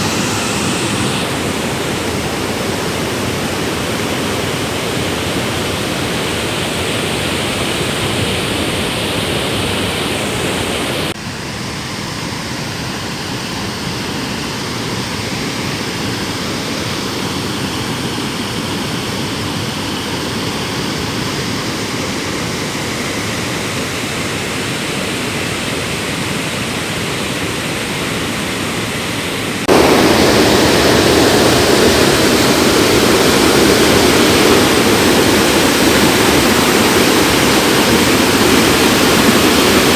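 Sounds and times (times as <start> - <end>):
river water rushing: 0.0 - 11.7, 21.3 - 39.9.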